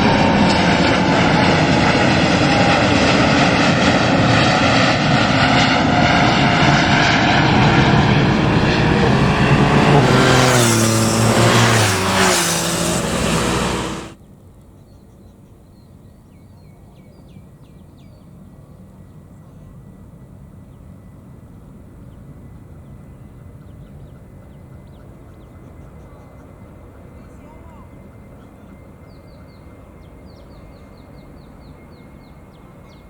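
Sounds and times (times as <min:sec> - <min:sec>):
jet engines whining on takeoff: 0:00.0 - 0:14.2.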